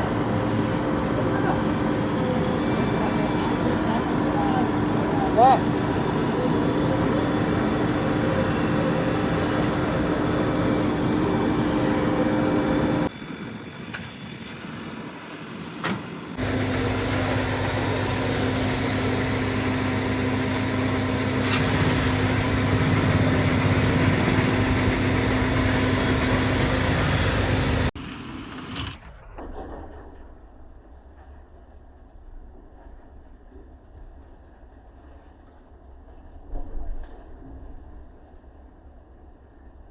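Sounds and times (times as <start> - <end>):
diesel engine droning: 0.0 - 29.4.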